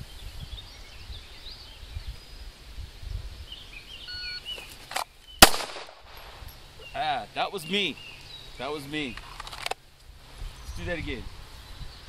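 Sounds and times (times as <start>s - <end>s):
wind rumble on microphone: 0.0s - 4.1s, 10.1s - 12.0s
wild birds chirping: 0.0s - 12.0s.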